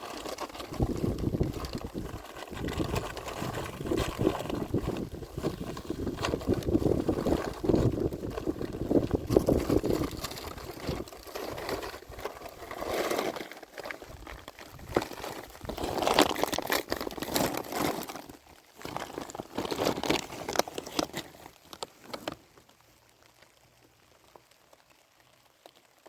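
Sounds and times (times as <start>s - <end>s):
wind rumbling on microphone: 0.6s - 12.3s, 14.0s - 16.4s.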